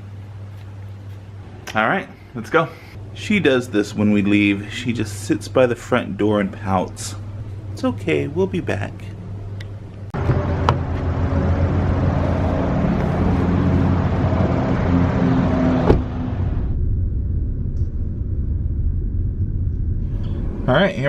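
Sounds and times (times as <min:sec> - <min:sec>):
car engine and road noise: 0:09.2 - 0:20.7.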